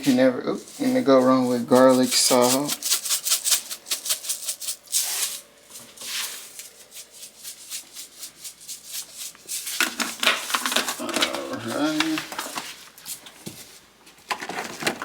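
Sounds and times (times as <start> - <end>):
salt shaker rattling: 0.7 - 11.0.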